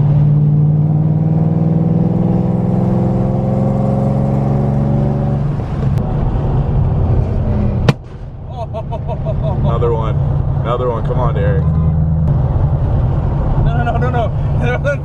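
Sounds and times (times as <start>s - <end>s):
exhaust backfire bang: 7.7s - 8.6s.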